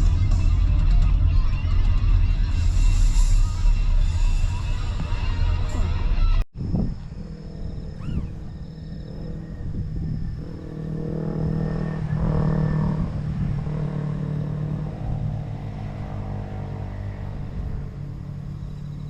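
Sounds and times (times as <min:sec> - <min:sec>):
vehicle engine running: 0:06.9 - 0:19.0.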